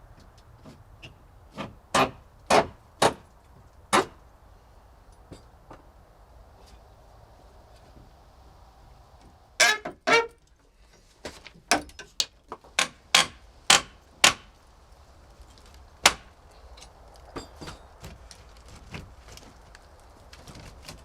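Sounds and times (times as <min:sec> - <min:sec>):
hammer striking wood: 0:01.9 - 0:03.2, 0:03.9 - 0:04.2, 0:11.7 - 0:14.5, 0:16.1 - 0:16.3.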